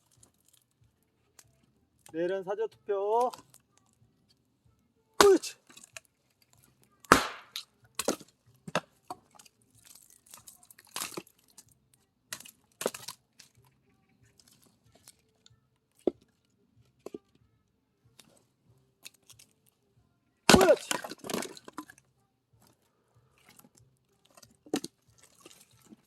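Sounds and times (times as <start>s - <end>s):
wood splintering: 5.2s - 5.5s, 7.1s - 8.8s, 20.5s - 21.6s
axe splitting firewood: 5.2s - 5.9s, 7.1s - 9.4s, 12.3s - 13.2s, 20.5s - 22.0s.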